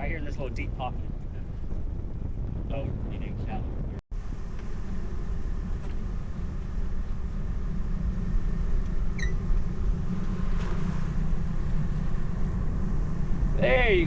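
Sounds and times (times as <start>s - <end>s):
boat motor running: 4.2s - 14.0s.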